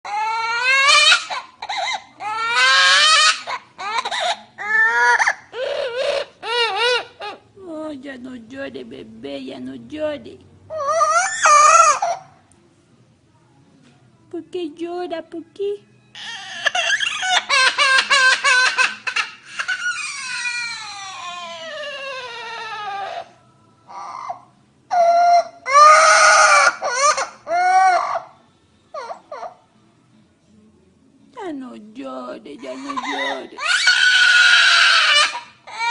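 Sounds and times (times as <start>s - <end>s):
high-pitched wailing cries: 0.0s - 7.5s, 10.7s - 12.4s, 16.1s - 29.8s, 32.6s - 35.9s.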